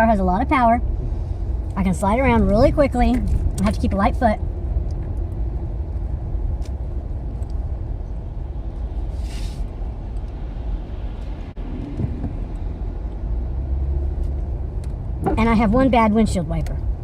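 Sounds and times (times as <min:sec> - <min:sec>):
car engine and tyres rumbling: 0:00.0 - 0:17.0
brief hiss: 0:09.1 - 0:09.7.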